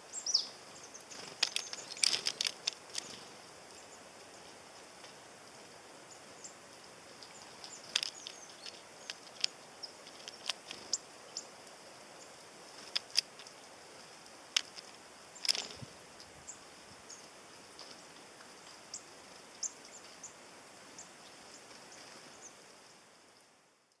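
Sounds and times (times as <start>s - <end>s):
faint hiss: 0.0s - 24.0s
birds tapping at feeder: 0.2s - 15.9s.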